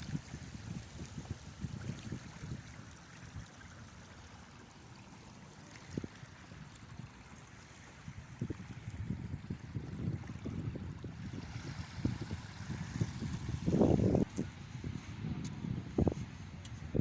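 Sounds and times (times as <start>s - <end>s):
wind gusts on microphone: 0.0s - 3.9s, 7.9s - 17.0s
water rushing: 0.0s - 14.7s.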